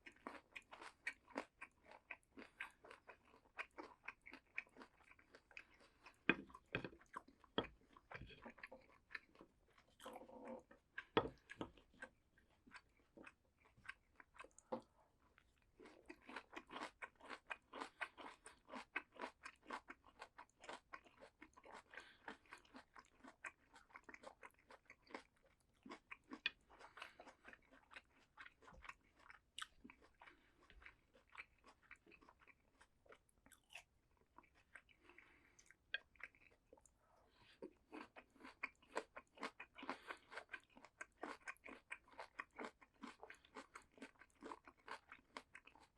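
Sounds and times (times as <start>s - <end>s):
chewing crisp raw vegetables: 0.0s - 45.9s.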